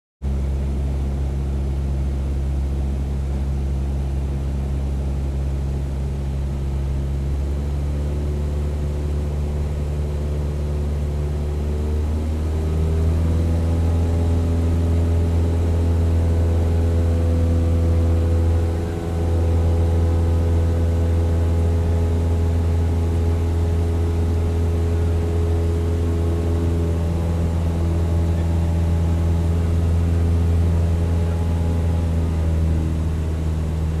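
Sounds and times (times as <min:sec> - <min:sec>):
propeller aircraft engine droning: 0:00.2 - 0:34.0.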